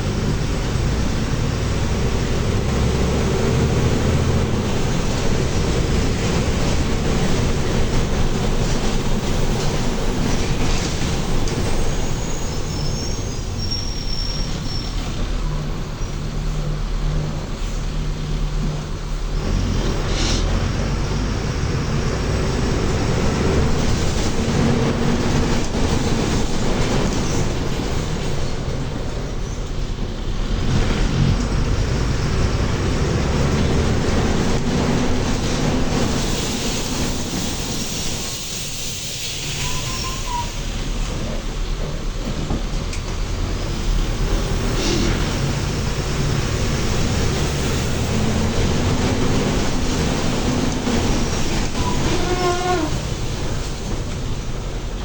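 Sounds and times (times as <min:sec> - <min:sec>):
bus diesel engine running: 0:00.0 - 0:55.0
road and body noise: 0:00.0 - 0:55.0
faint high squeal: 0:09.9 - 0:16.5, 0:39.1 - 0:41.0, 0:51.7 - 0:53.4.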